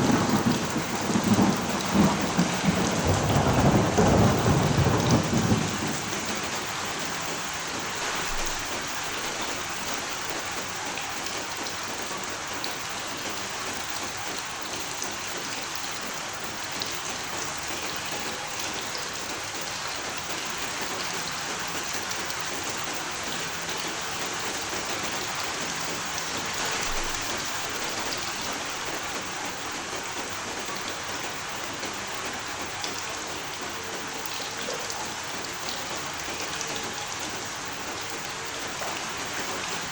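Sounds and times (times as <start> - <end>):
low thunder rumble: 0.0 - 7.6
raindrop ticks: 0.0 - 39.9
steady rain falling: 0.0 - 39.9.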